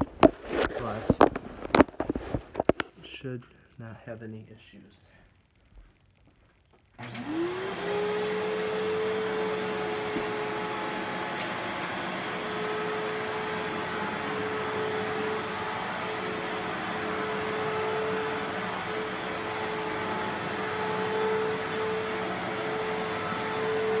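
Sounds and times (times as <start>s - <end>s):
vacuum cleaner running: 7.0s - 24.0s.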